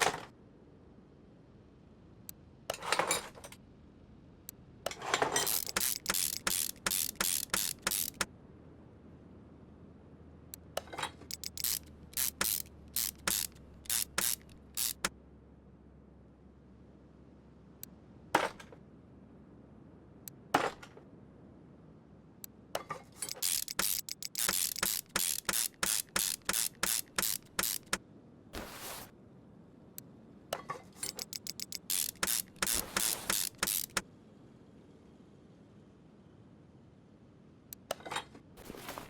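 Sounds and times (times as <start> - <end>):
ratchet wrench rasping clicks: 4.9 - 8.3, 10.8 - 15.1, 23.1 - 28.0, 30.9 - 34.0.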